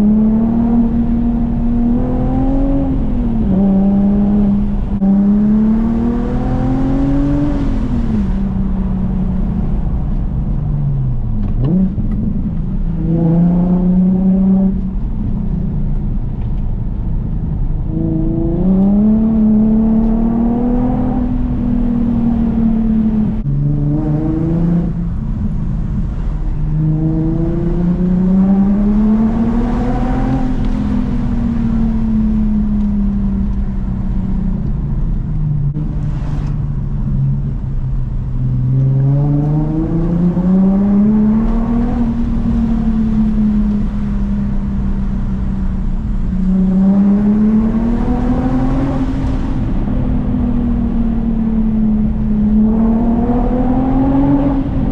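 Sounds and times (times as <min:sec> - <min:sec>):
car engine revving hard: 0:00.0 - 0:08.4, 0:26.8 - 0:31.2, 0:45.9 - 0:54.9.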